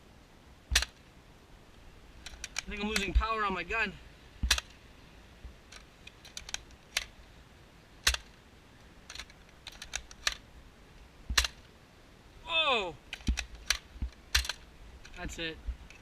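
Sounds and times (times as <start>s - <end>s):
loud plastic snaps: 0.7s - 1.0s, 4.4s - 4.8s, 8.0s - 8.4s, 9.1s - 10.4s, 11.3s - 11.7s, 13.1s - 15.2s
plastic toy blaster clicks: 0.8s - 1.0s, 9.1s - 10.4s, 13.1s - 14.6s.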